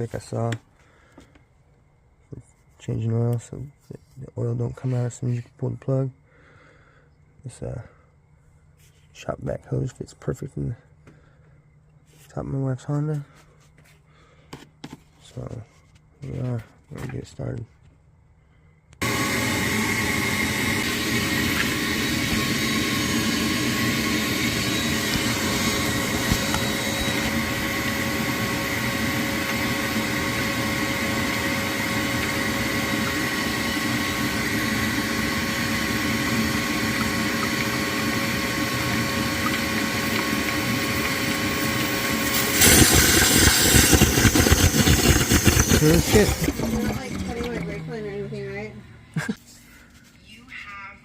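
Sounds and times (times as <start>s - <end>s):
shop vacuum running: 19.0s - 49.4s.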